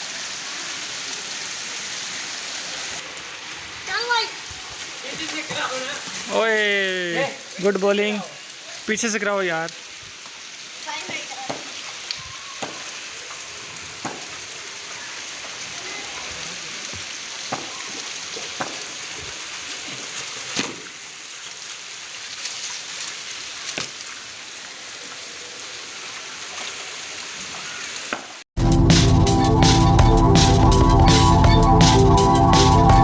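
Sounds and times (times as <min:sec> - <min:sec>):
heavy rain hissing: 0:00.0 - 0:22.2
loud electronic music: 0:28.6 - 0:33.0.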